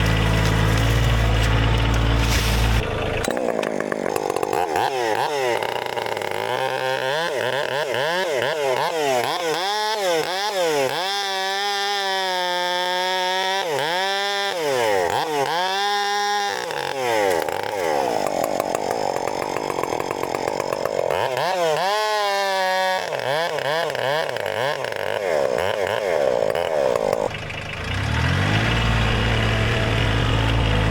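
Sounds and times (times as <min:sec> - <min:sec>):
tractor diesel engine: 0:00.0 - 0:08.1, 0:14.9 - 0:24.7, 0:25.4 - 0:30.9
chainsaw revving: 0:00.0 - 0:30.9.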